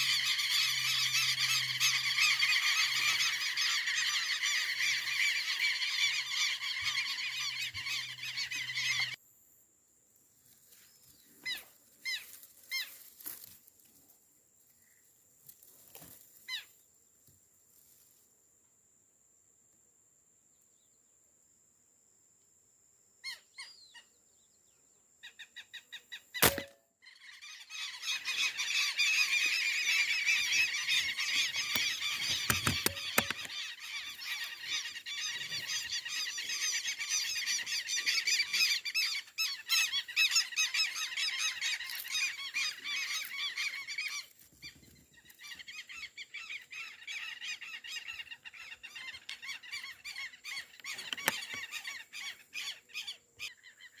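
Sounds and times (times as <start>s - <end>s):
flock of ducks calling: 0.0s - 9.2s, 27.5s - 44.3s
air rifle shot: 26.4s - 26.8s.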